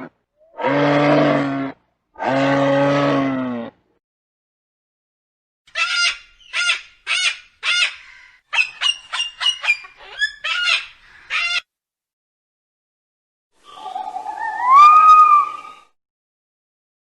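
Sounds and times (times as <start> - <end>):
bird calling: 5.7 - 11.6, 13.6 - 15.9.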